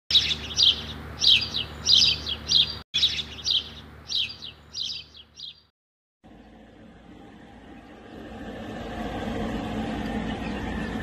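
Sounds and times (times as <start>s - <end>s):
small bird chirping: 0.1s - 5.7s.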